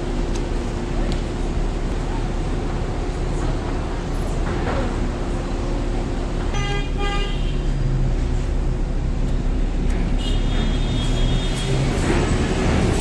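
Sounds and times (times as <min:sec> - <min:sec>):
road traffic rumble: 0:00.0 - 0:13.0
vehicle horn tooting: 0:06.5 - 0:07.6, 0:10.2 - 0:12.4.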